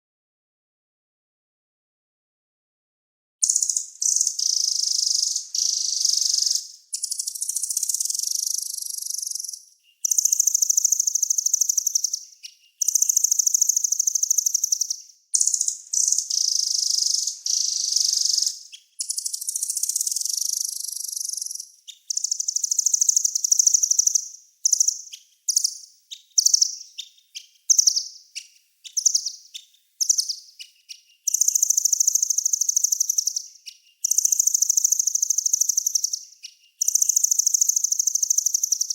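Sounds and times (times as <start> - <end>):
songbird buzzing trills: 3.4 - 25.7.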